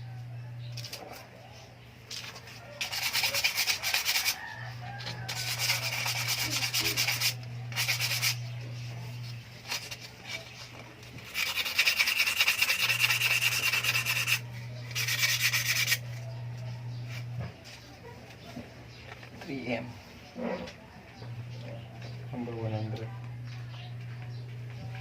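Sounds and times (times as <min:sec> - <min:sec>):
low electrical hum: 0:00.0 - 0:25.0
sandpaper rubbing on metal frame: 0:02.2 - 0:16.2.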